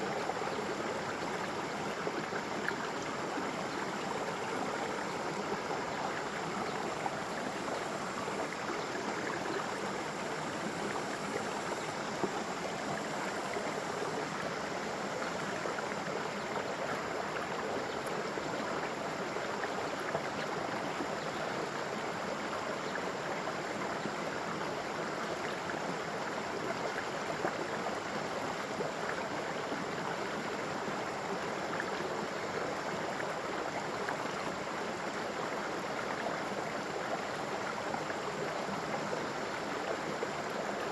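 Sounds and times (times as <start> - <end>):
water flowing over waterfall: 26.4 - 40.9.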